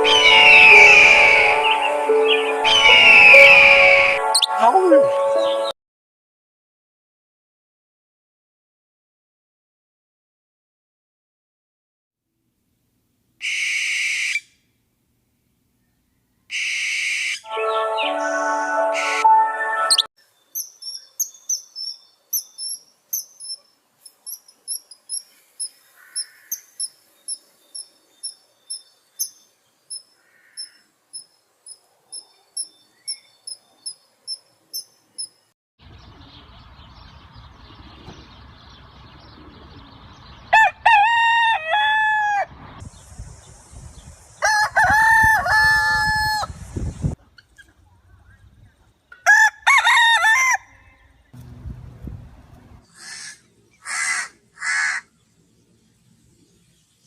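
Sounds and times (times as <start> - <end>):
small bird chirping: 20.2 - 40.5
outdoor hiss: 23.8 - 28.1, 42.8 - 44.4
rooster crowing: 40.5 - 42.6, 44.4 - 46.6, 49.2 - 51.3.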